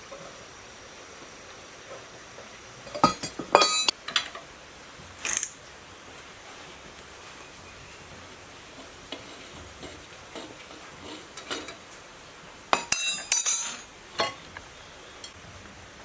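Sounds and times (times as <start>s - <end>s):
metal tools clinking: 2.8s - 4.4s, 5.2s - 5.6s, 12.8s - 14.4s.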